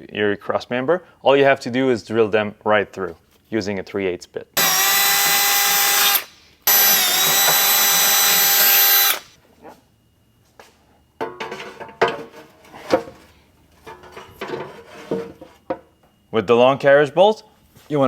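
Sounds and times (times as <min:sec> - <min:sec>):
power drill drilling metal: 0:04.6 - 0:09.3.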